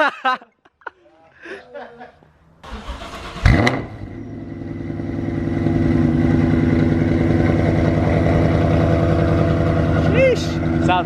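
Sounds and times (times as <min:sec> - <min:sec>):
car engine idling: 0:02.6 - 0:11.0.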